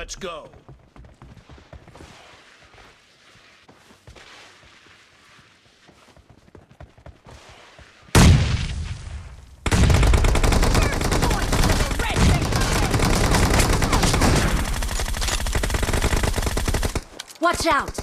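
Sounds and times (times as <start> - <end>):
rapid automatic gunfire: 9.6 - 17.1.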